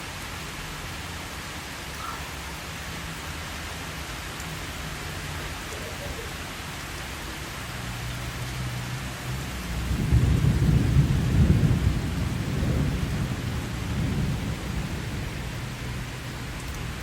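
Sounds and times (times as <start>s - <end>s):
steady rain falling: 0.0s - 17.0s
distant thunder rumble: 9.7s - 17.0s.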